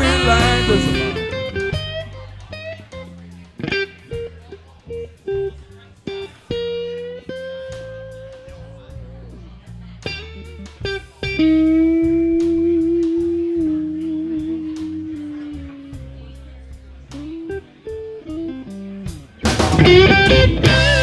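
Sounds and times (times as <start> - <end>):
electric guitar lead notes: 0.0 - 9.1, 10.0 - 21.0
bass: 0.0 - 21.0
drums with hi-hat ticking: 10.0 - 21.0.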